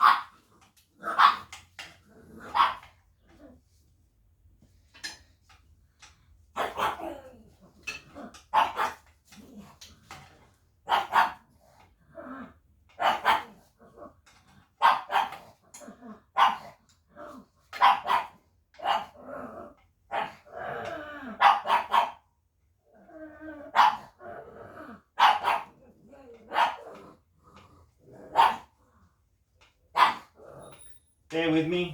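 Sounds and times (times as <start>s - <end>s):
dog barking: 0.0s - 0.3s, 1.0s - 1.5s, 2.4s - 2.8s, 6.6s - 7.1s, 8.5s - 9.0s, 10.9s - 11.4s, 13.0s - 13.6s, 14.8s - 15.4s, 16.4s - 16.7s, 17.8s - 19.2s, 21.4s - 22.2s, 23.7s - 24.2s, 25.2s - 25.8s, 26.4s - 26.9s, 28.3s - 28.7s, 29.9s - 30.4s.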